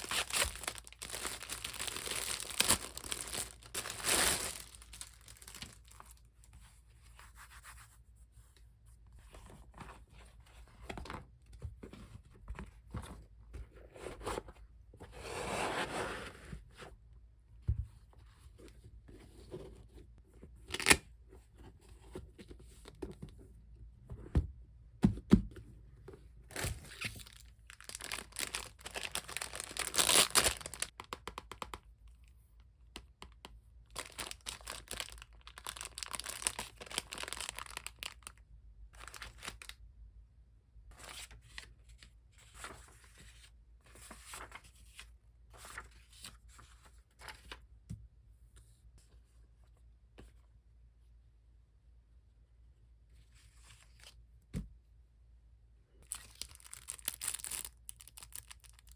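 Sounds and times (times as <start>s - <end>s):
packaging tearing and crinkling: 0.0s - 6.2s, 26.9s - 31.0s, 34.0s - 38.3s, 56.1s - 58.9s.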